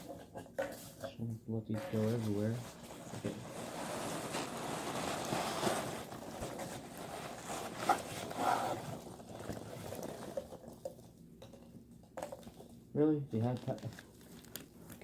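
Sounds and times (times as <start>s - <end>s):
packing peanuts rustling: 2.4s - 10.5s, 13.4s - 15.0s.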